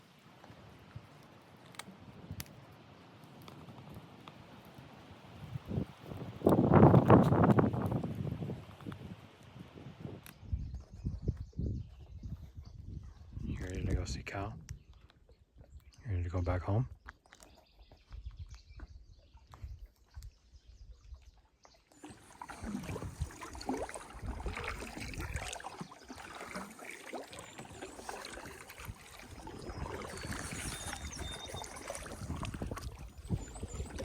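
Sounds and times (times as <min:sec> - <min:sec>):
wind on microphone: 0:05.2 - 0:15.9, 0:22.1 - 0:26.6, 0:27.6 - 0:34.0
water splashing: 0:21.8 - 0:34.0
paddle strokes: 0:21.9 - 0:34.0.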